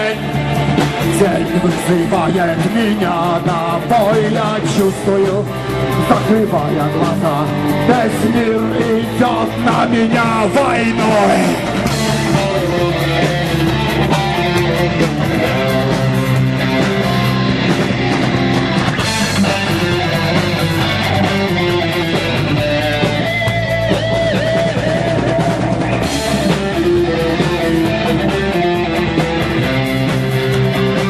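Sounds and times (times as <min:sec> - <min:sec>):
drum kit: 0:00.0 - 0:31.0
electric guitars: 0:00.0 - 0:31.0.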